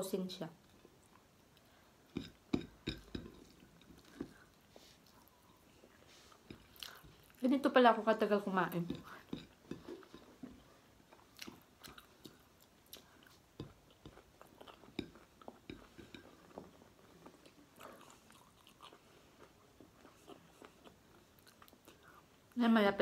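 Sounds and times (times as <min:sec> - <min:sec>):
chewing and crunching fried fish: 0:10.2 - 0:22.6.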